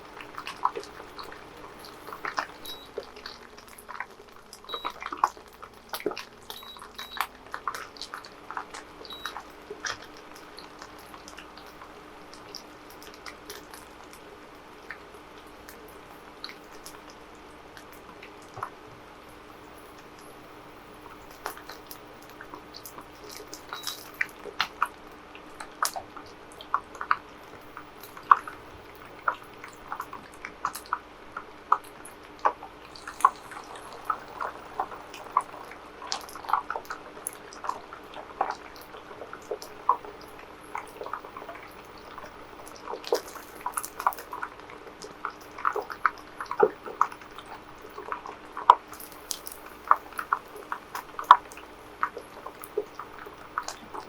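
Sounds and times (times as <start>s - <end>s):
faint steady hum: 0.0s - 54.0s
food frying in hot oil: 0.0s - 54.0s.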